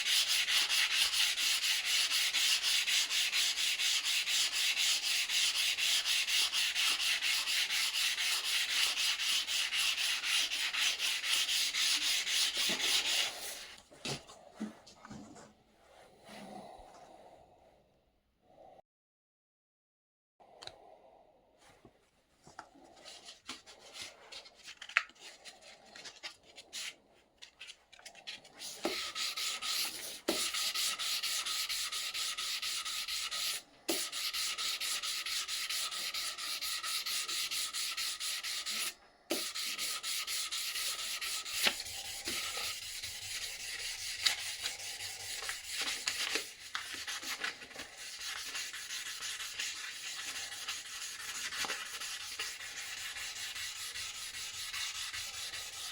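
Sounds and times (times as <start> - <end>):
abrasive sanding: 0.0 - 13.4, 28.9 - 55.9
scrapes and taps: 11.3 - 15.5.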